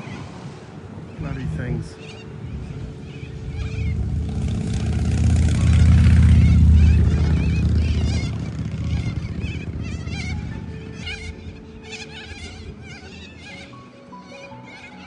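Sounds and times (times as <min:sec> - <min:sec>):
vehicle driving past: 0:02.4 - 0:13.6
parrots screeching: 0:03.0 - 0:04.9, 0:05.5 - 0:15.0.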